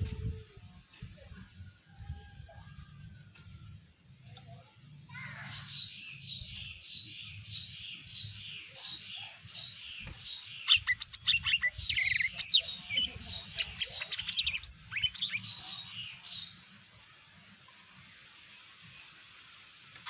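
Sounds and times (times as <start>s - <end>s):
bird repeated chirps: 5.6s - 16.4s.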